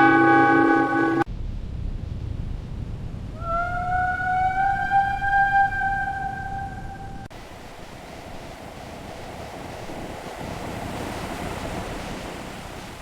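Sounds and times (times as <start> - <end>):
steady rushing noise: 6.8 - 13.0.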